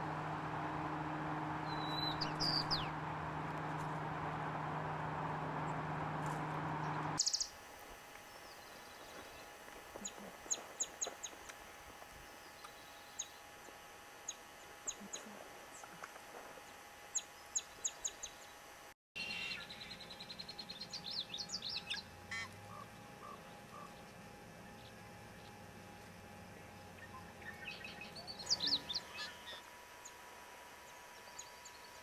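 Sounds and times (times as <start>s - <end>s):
birds calling: 0.0s - 7.2s.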